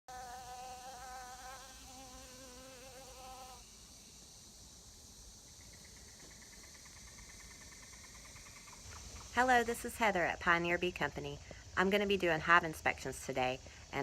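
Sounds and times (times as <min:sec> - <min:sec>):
honey bees buzzing: 0:00.1 - 0:03.6
faint hiss: 0:00.1 - 0:06.4, 0:08.8 - 0:14.0.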